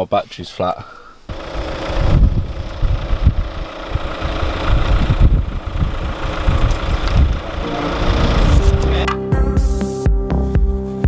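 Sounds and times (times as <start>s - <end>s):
car engine idling: 1.3s - 9.1s
wind buffeting microphone: 1.5s - 9.0s.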